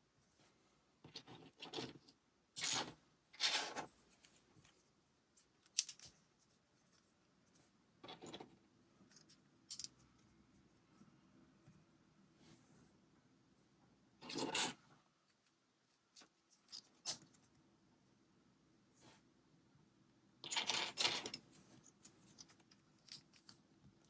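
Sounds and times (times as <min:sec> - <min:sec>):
lego parts scraping and rustling: 0:01.1 - 0:10.3, 0:14.2 - 0:17.6, 0:20.4 - 0:23.7.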